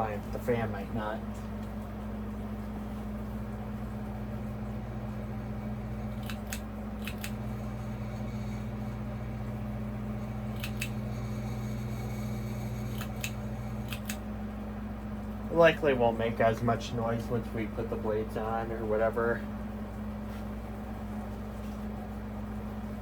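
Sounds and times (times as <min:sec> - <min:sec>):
fan motor humming: 0:00.0 - 0:23.0
sharp clicks: 0:06.2 - 0:07.4, 0:10.6 - 0:11.0, 0:12.9 - 0:14.2.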